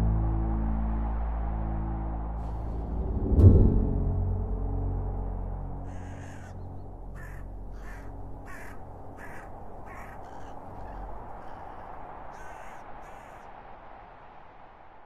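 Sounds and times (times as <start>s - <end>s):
low hum of music: 0.0s - 11.9s
bird giving harsh calls: 5.9s - 6.6s, 7.2s - 13.4s.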